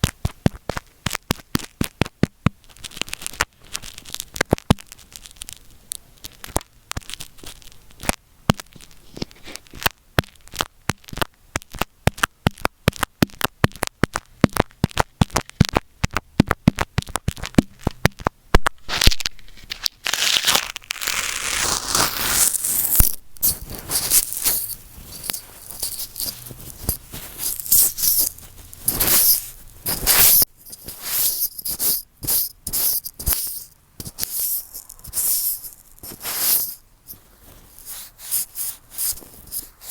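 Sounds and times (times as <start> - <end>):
taps on microphone: 10.2 - 18.8
scratchy rubbing on microphone: 18.9 - 39.9.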